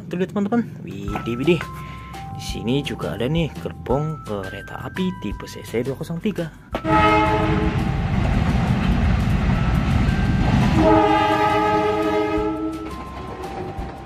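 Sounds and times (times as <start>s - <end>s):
diesel locomotive rumbling past: 6.7s - 14.0s
train horn blasts: 6.8s - 7.9s, 10.8s - 12.9s.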